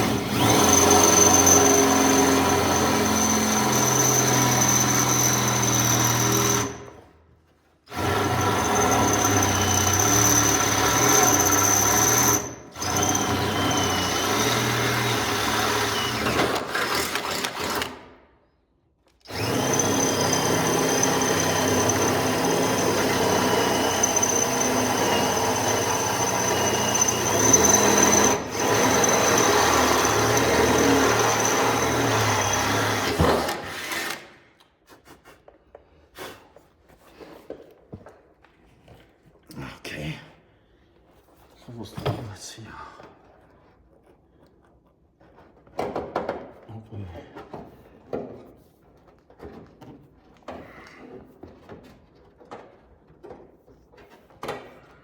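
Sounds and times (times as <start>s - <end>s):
power drill whining: 0.0s - 7.1s, 7.9s - 18.1s, 19.2s - 34.5s.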